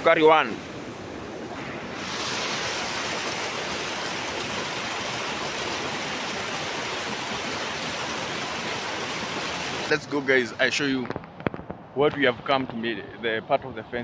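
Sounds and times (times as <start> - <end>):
river water rushing: 0.0 - 10.8.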